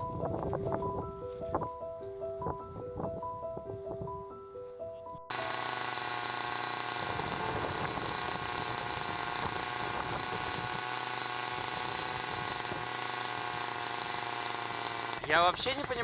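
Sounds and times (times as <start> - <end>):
helicopter engines and rotor: 14.9 - 16.0
high turbine whine: 15.0 - 16.0.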